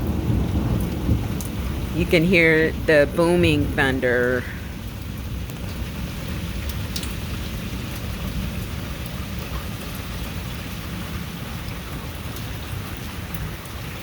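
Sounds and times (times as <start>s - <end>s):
low rumble of thunder: 0.0s - 2.0s
heavy rain falling: 0.0s - 14.0s.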